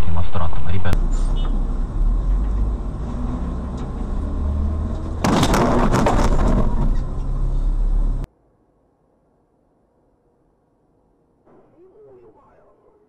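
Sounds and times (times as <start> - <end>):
vehicle engine rumbling: 0.0 - 8.3
road crash with clattering: 1.0 - 8.2.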